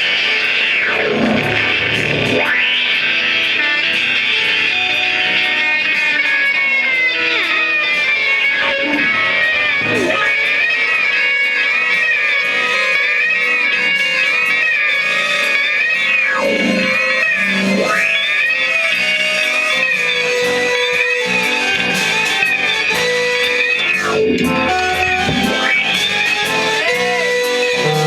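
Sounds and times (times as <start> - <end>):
live rock music: 0.0 - 28.0
wavering electric guitar: 0.0 - 28.0
bass: 20.4 - 28.0.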